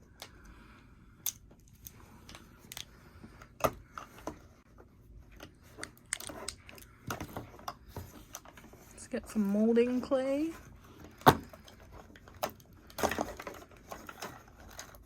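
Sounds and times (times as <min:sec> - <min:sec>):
plastic pieces clicking: 0:05.4 - 0:07.3.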